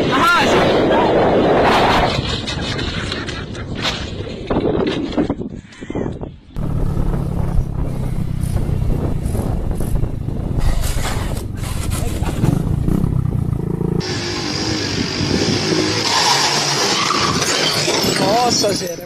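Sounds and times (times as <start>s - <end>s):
motorcycle engine running: 6.6s - 16.0s.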